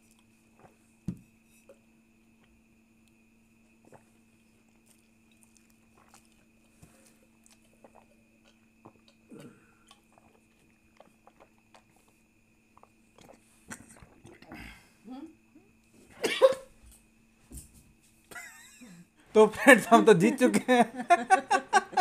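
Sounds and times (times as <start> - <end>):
people chewing: 3.9 - 14.8.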